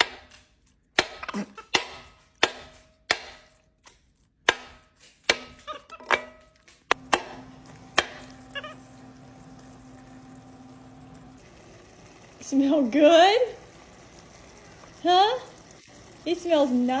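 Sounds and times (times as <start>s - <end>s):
knife chopping on cutting board: 0.0s - 6.3s, 6.9s - 8.4s
steady low hum: 7.0s - 12.5s.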